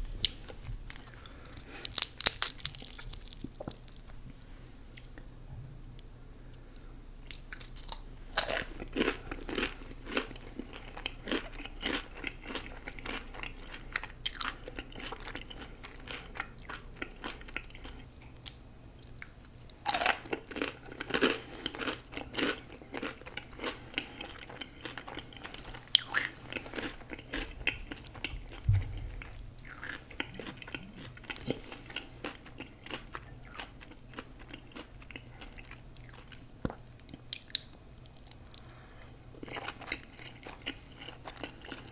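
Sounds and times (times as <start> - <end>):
person chewing crunchy food: 0.2 - 4.1, 7.2 - 41.9
low bump: 28.4 - 29.4.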